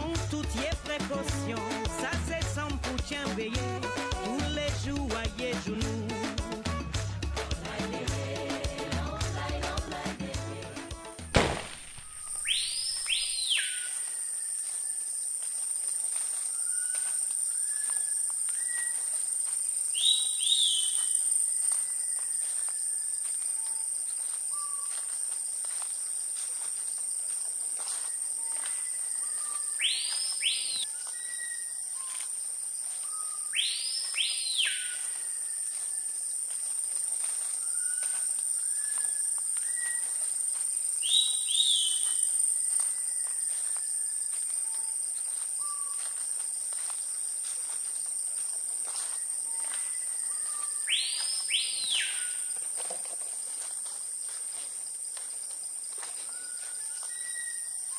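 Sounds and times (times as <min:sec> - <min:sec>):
bird loud whistle: 0:11.4 - 0:14.5, 0:20.0 - 0:22.2, 0:28.8 - 0:32.2, 0:33.0 - 0:35.6, 0:38.6 - 0:40.1, 0:41.0 - 0:42.3, 0:49.6 - 0:52.5, 0:56.4 - 0:57.9
bird call: 0:11.4 - 0:15.0, 0:16.5 - 0:19.1, 0:19.9 - 0:25.1, 0:28.0 - 0:32.3, 0:33.0 - 0:36.1, 0:37.5 - 0:40.3, 0:41.0 - 0:46.2, 0:49.0 - 0:52.6, 0:56.2 - 0:57.9
high-pitched insect drone: 0:12.4 - 0:53.0.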